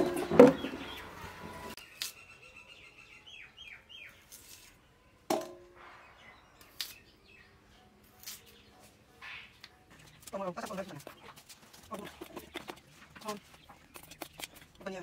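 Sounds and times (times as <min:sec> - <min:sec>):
bird chirping: 0:00.0 - 0:04.4.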